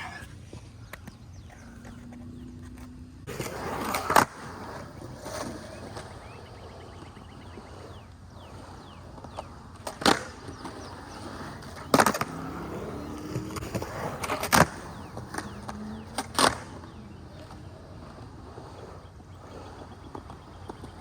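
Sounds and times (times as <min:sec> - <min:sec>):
skateboard rolling on concrete: 0:00.0 - 0:21.0
skateboard landing clacks: 0:09.2 - 0:12.4, 0:13.2 - 0:17.6.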